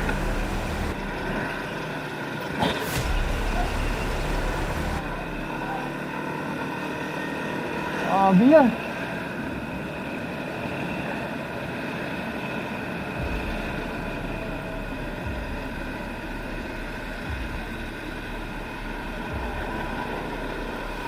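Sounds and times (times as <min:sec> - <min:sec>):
deep low rumble: 0:00.0 - 0:02.0, 0:02.9 - 0:06.0, 0:13.2 - 0:21.0
vehicle engines in slow traffic: 0:00.0 - 0:21.0.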